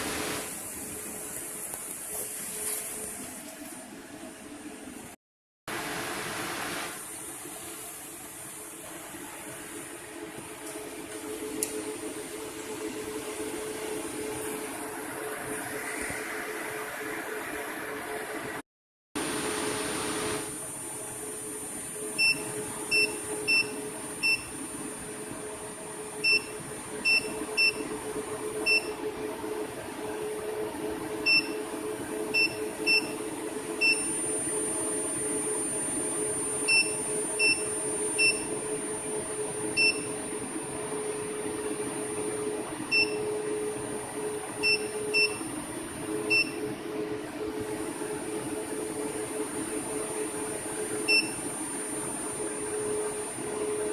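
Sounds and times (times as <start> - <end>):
thin high equipment whine: 19.3 - 53.9.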